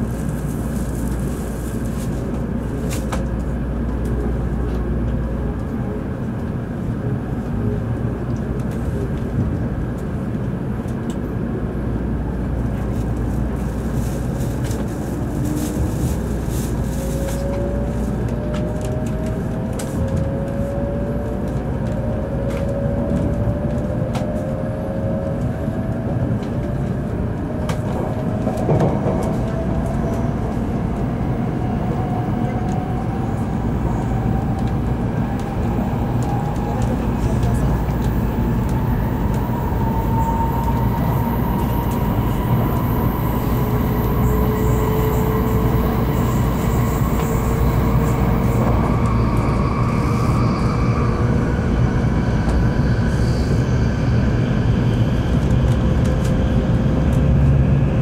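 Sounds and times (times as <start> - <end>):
train rumble: 0.0 - 58.0
train motor whine: 37.8 - 54.1.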